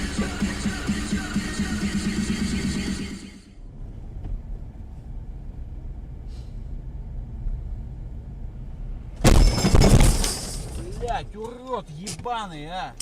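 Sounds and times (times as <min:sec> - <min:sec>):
car road and engine rumble: 0:00.0 - 0:13.0
sudden loud impact: 0:09.2 - 0:10.8.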